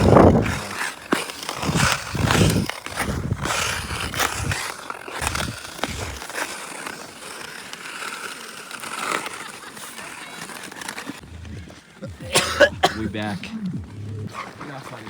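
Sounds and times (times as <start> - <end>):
wind buffeting microphone: 0.0 - 0.6, 1.6 - 4.6, 5.2 - 6.2
ice skates scraping on ice: 0.0 - 15.0.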